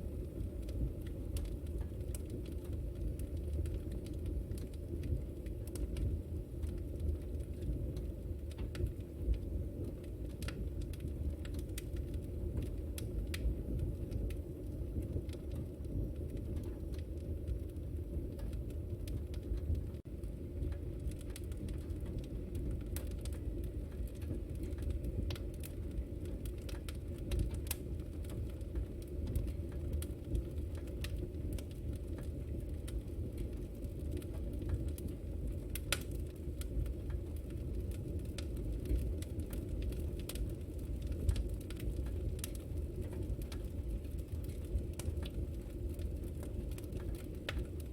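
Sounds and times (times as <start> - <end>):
fire crackles and pops: 0.0 - 47.9
low rumble of flames: 0.0 - 47.9.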